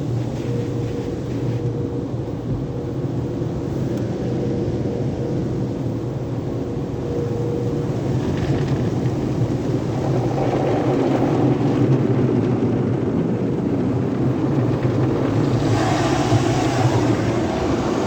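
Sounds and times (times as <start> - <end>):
car wash equipment rushing: 0.0 - 18.0
hissing water spray: 15.4 - 18.0.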